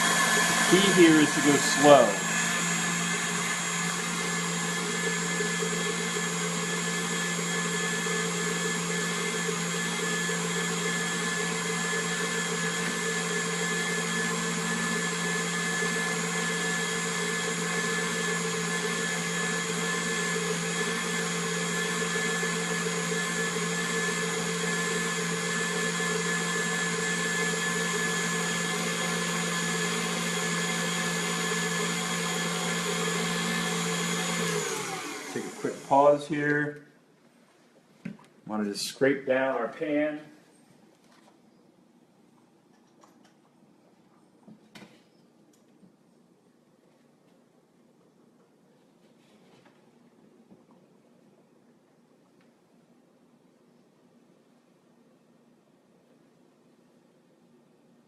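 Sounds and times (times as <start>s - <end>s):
stand mixer motor whine: 0.0s - 36.3s.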